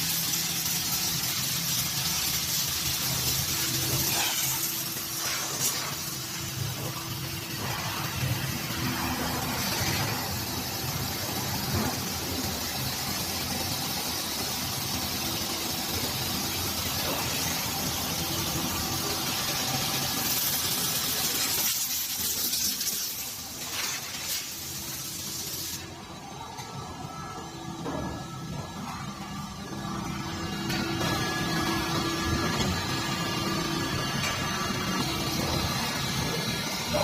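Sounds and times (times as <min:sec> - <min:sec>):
hiss of air: 0:00.0 - 0:15.7, 0:19.0 - 0:25.9.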